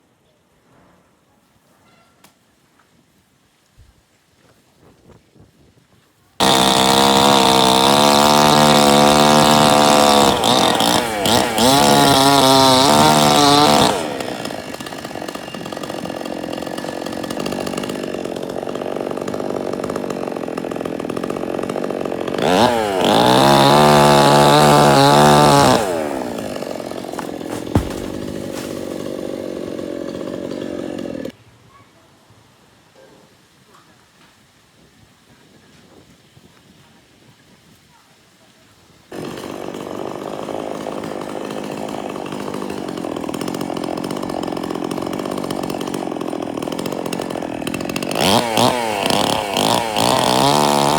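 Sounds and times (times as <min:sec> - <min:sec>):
two-stroke chainsaw revving: 0:06.4 - 0:31.4, 0:39.1 - 0:50.9.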